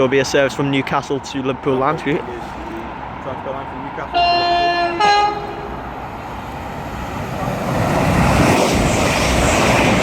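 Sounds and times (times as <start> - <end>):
train passing at high speed: 2.8 - 10.0
two-tone train horn: 4.1 - 5.9.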